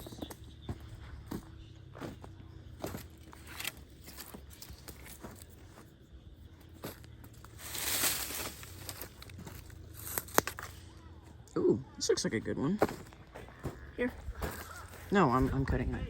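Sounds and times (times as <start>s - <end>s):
footsteps through forest litter: 0.0s - 11.4s, 12.8s - 15.8s
brush rustling: 6.8s - 10.9s
twig snaps: 10.0s - 10.8s.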